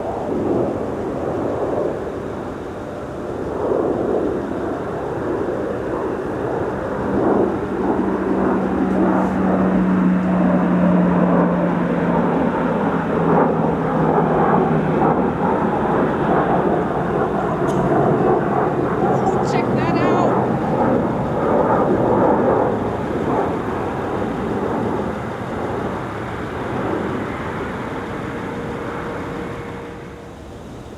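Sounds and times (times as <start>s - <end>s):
turboprop aircraft engines: 0.0s - 30.9s
steady tone: 23.6s - 30.9s.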